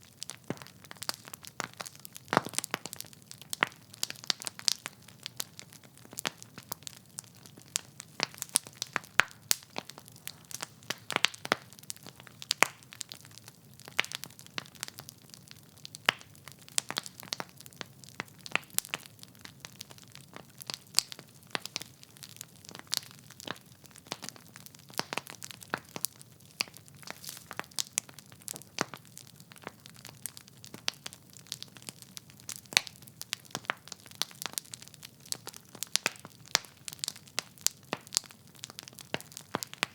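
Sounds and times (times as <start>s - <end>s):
logs crackling and popping: 0.0s - 39.9s.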